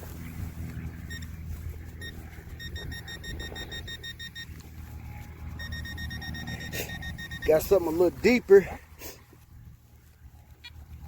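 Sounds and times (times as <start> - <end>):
metal detector beeping: 1.0 - 8.4.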